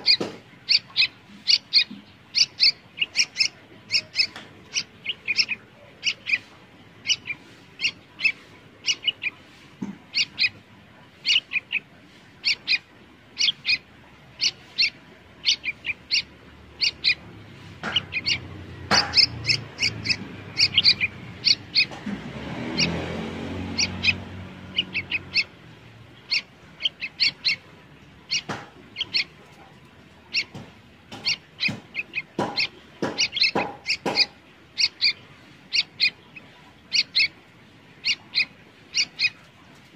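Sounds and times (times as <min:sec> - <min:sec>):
bird chirping: 0:00.0 - 0:39.9
short knocks: 0:30.4 - 0:34.4.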